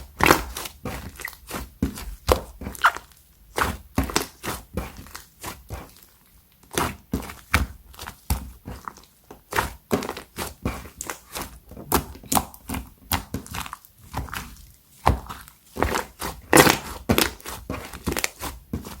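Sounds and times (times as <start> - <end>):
slime squeezed by hand: 2.7 - 3.7.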